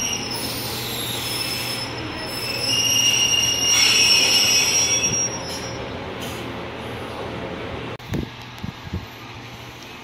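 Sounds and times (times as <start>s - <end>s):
train brakes squealing: 0.0s - 6.5s
low steady train rumble: 0.0s - 10.0s.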